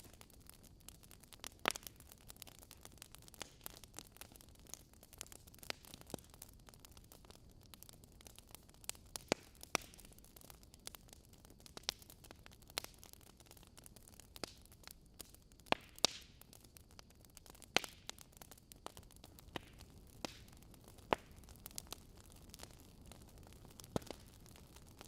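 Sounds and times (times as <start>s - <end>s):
faint fire hiss: 0.0s - 25.0s
wood logs crackling in fireplace: 0.0s - 25.0s.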